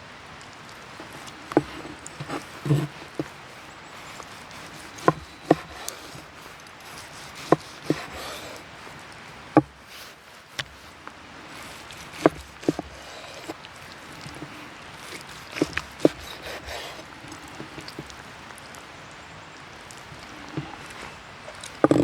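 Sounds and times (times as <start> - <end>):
faint steady hiss: 0.0 - 22.0
sharp wooden knocks: 4.1 - 8.6, 9.6 - 9.8, 12.0 - 13.6, 14.2 - 18.1, 21.6 - 22.0.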